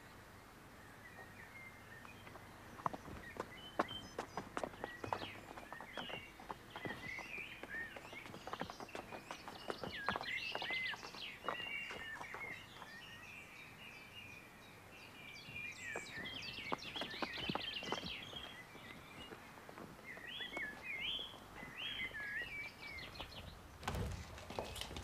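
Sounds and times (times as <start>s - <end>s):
birds chirping and singing: 0.8s - 25.0s.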